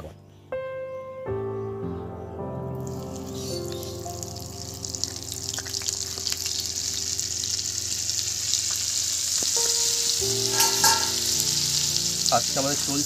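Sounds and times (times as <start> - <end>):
spice paste sizzling in oil: 2.8 - 13.0.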